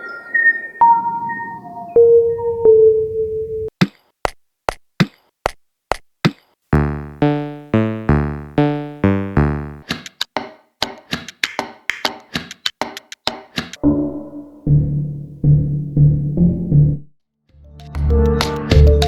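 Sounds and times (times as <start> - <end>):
low synth notes: 6.8 - 9.8, 13.8 - 19.0
percussive clicks: 8.1 - 13.8.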